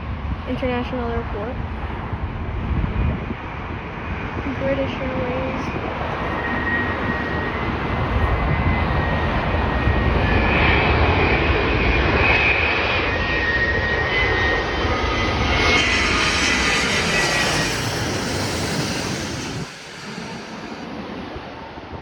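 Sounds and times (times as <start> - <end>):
jet passing with fan whine: 0.0 - 22.0.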